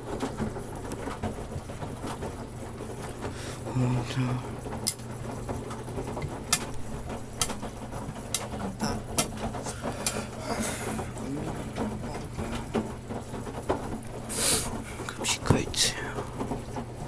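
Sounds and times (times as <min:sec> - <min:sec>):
washing machine humming: 0:00.0 - 0:17.0
short hiss: 0:14.3 - 0:14.7.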